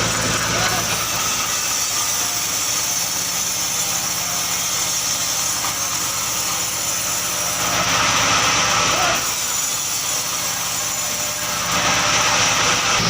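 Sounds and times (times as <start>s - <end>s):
engine running steadily: 0.0s - 1.6s.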